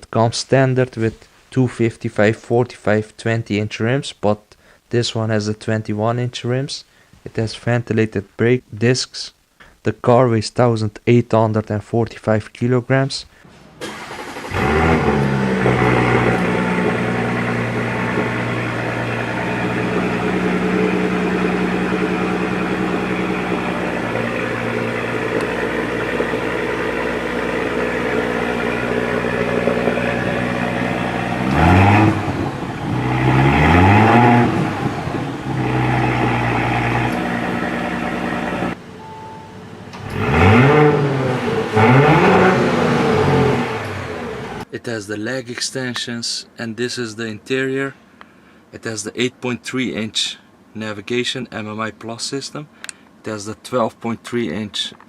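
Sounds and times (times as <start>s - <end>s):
car engine revving: 13.8s - 38.8s, 39.6s - 44.6s
car engine idling: 13.8s - 44.6s.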